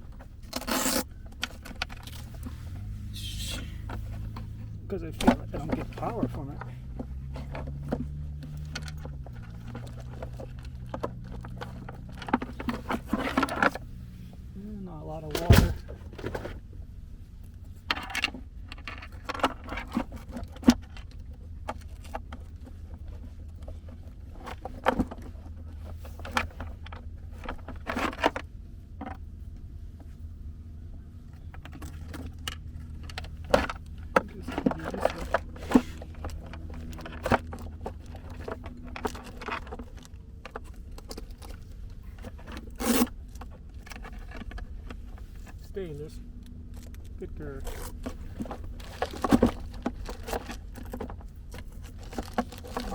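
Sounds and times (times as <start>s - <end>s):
scrapes clicks and rustles: 0.0s - 52.9s
steady low rumble: 1.2s - 24.4s.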